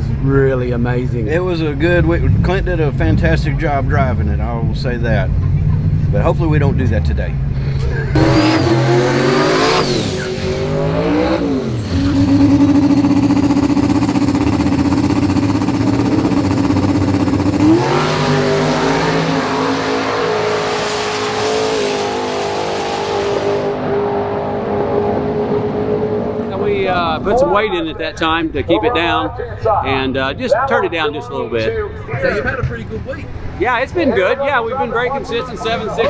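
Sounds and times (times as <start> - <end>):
race car engine revving: 7.7 - 27.3.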